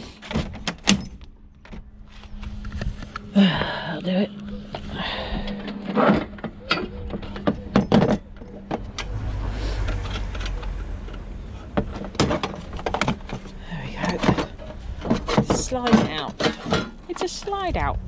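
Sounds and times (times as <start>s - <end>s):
low rumble: 1.1s - 17.1s
metal clinking and knocking: 5.6s - 9.2s, 9.8s - 17.7s.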